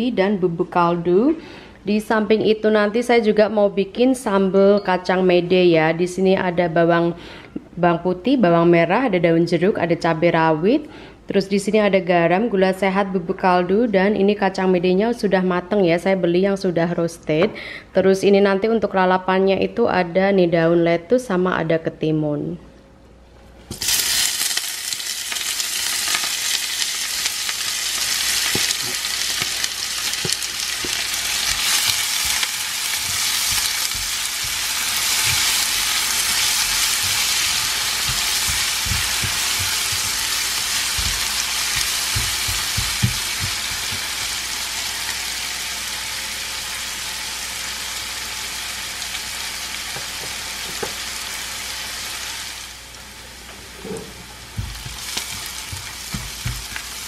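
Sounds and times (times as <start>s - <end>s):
vegetables sizzling in hot oil: 23.7s - 53.0s, 54.4s - 57.0s
spatula knocking and scraping pan: 28.4s - 44.7s, 50.0s - 51.0s, 53.8s - 57.0s.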